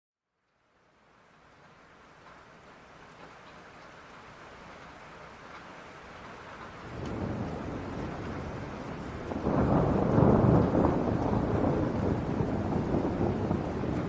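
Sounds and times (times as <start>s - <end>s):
steady rain: 0.2s - 14.0s
thunder rumbling: 6.8s - 14.0s.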